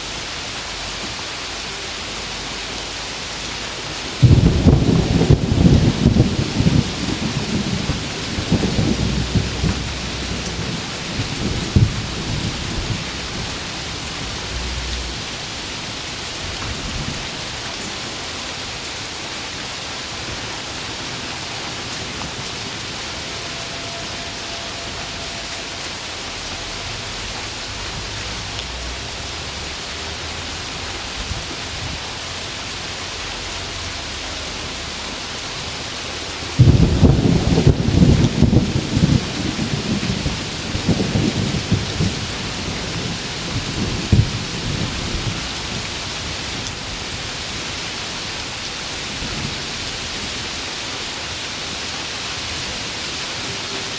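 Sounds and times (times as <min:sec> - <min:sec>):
heavy rain falling: 0:00.0 - 0:53.9
thunder rumbling: 0:04.1 - 0:35.2, 0:36.4 - 0:50.6.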